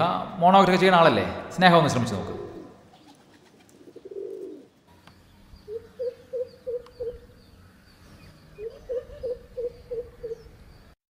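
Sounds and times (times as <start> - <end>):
bird hooting low notes: 2.2 - 11.0.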